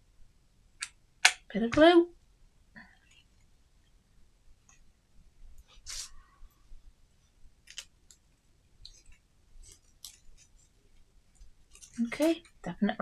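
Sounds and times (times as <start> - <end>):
small clicks and rustles: 7.6 - 12.7.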